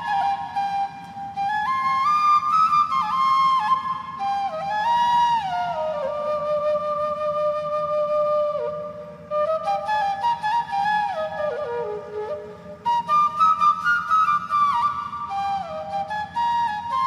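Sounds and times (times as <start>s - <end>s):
low backing hum: 0.0s - 17.0s
slow flute melody: 0.0s - 17.0s.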